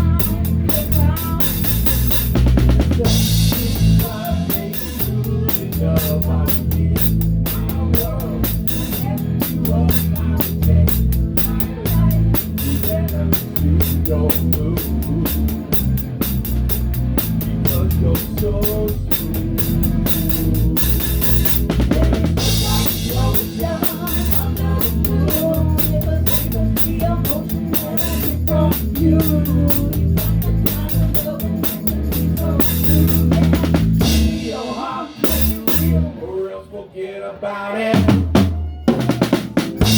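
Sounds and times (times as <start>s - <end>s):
live rock band playing: 0.0s - 36.1s, 38.2s - 39.9s
drum kit: 0.0s - 36.2s, 38.0s - 39.9s.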